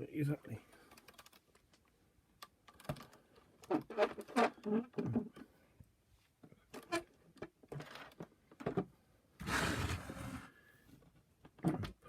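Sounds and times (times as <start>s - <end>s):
plastic clicks and knocks: 0.9s - 5.5s, 6.7s - 8.9s.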